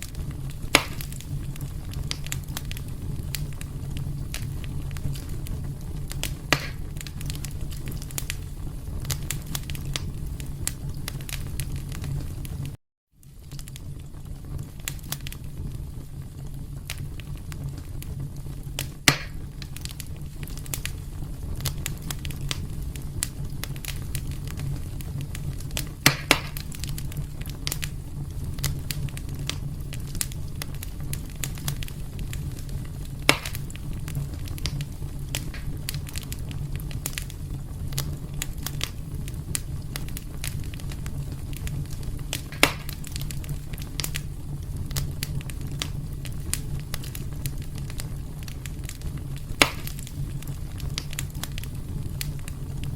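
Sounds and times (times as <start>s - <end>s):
fire crackling: 0.0s - 52.9s
fire rumbling: 0.0s - 52.9s
loud wood pops: 0.7s - 1.3s, 6.2s - 6.9s, 19.1s - 19.4s, 26.0s - 26.8s, 33.3s - 33.7s, 35.4s - 35.8s, 42.3s - 43.0s, 49.6s - 50.0s.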